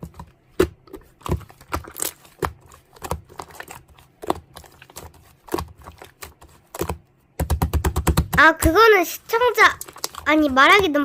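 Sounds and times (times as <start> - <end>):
keyboard typing: 4.3 - 11.0.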